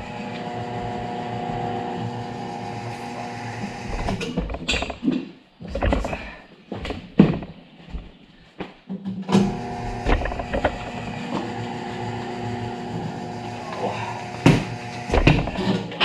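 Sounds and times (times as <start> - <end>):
tire changer motor humming: 0.0 - 4.9, 9.4 - 15.7.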